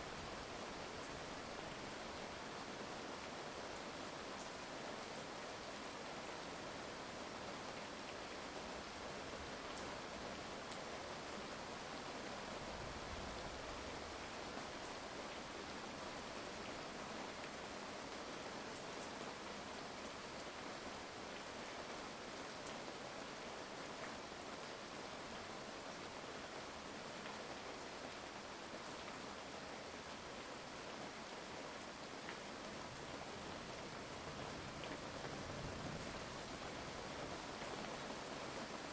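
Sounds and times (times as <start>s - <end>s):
heavy rain pattering: 32.3s - 38.9s.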